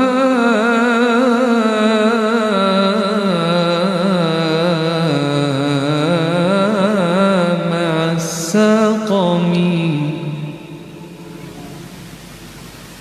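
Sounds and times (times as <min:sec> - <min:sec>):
man chanting: 0:00.0 - 0:12.2.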